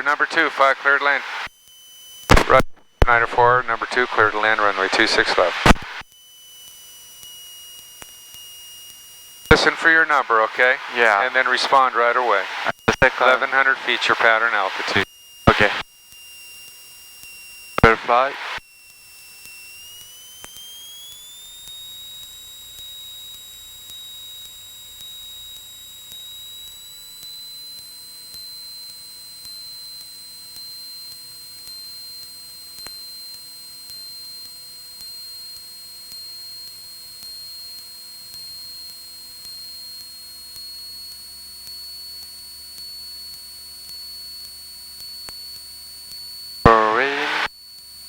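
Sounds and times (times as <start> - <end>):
high-pitched electrical whine: 0.0 - 27.9, 29.3 - 48.0
faint low hum: 2.4 - 6.0, 9.5 - 15.8, 17.8 - 18.6, 46.7 - 47.5.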